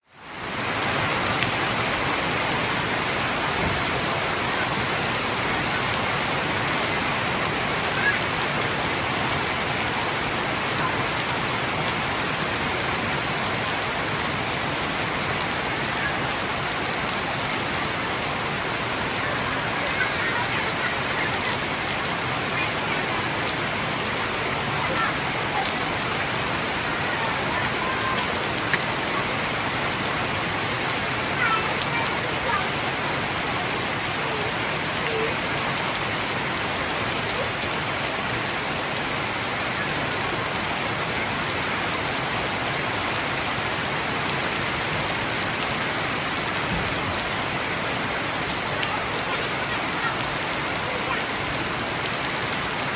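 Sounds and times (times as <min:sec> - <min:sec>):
heavy rain hissing: 0:00.0 - 0:52.9.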